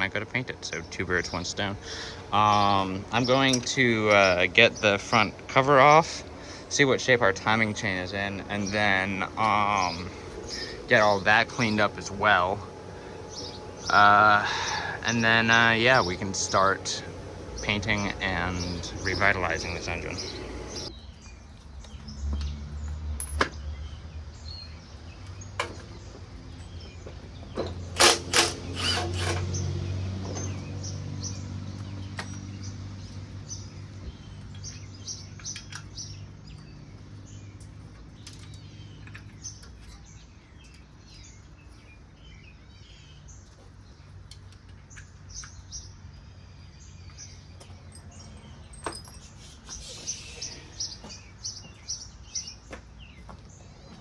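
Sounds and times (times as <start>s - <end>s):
low hum: 0.0s - 20.9s
birds chirping: 0.0s - 54.0s.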